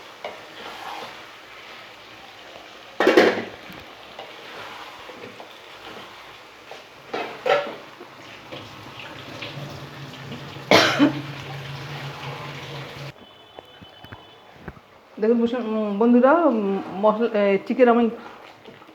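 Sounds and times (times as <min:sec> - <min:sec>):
chicken sizzling in a pan: 0:00.0 - 0:13.1
spatula scraping a pan: 0:00.1 - 0:02.1, 0:03.0 - 0:13.1.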